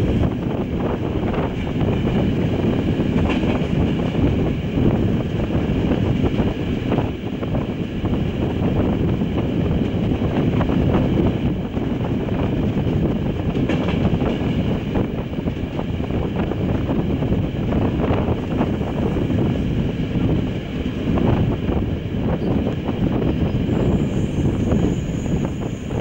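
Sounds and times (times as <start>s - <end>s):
train wheels rumbling on rails: 0.0s - 26.0s
wind rushing past microphone: 0.0s - 26.0s.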